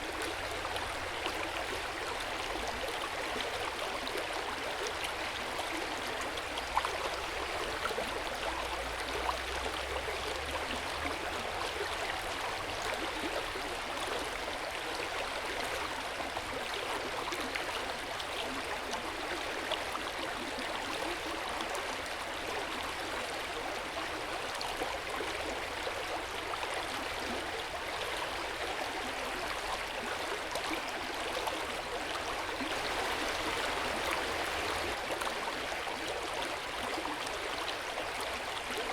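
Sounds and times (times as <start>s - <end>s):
water flowing and splashing: 23.8s - 38.9s.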